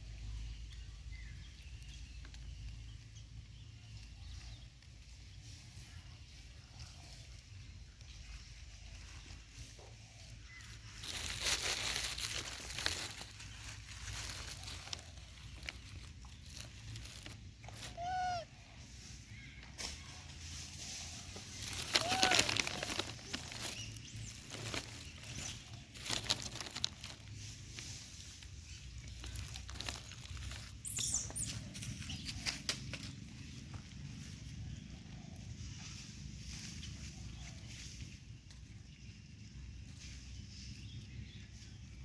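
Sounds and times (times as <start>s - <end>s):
monkey squeaky calls: 17.8s - 18.5s, 21.8s - 23.4s, 30.8s - 31.6s
clicks and rustles of handling: 21.3s - 30.8s.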